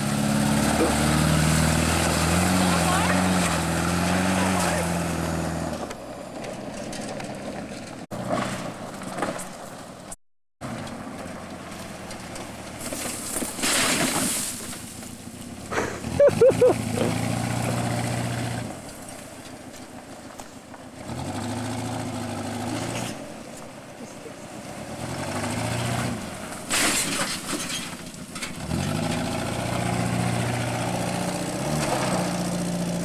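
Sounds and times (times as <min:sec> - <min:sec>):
car engine revving: 0:00.0 - 0:06.1, 0:14.7 - 0:19.0, 0:20.9 - 0:23.3, 0:24.3 - 0:26.6, 0:28.0 - 0:33.0
tires on mud and gravel: 0:00.0 - 0:33.0.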